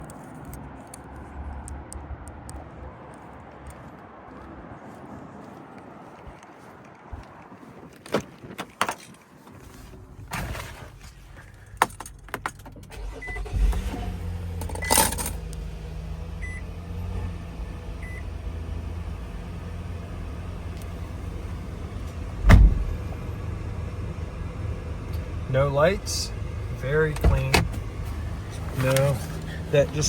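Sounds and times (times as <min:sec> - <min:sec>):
keys jangling: 0:08.6 - 0:09.3, 0:14.6 - 0:15.4
car engine cranking and idling: 0:09.5 - 0:30.0.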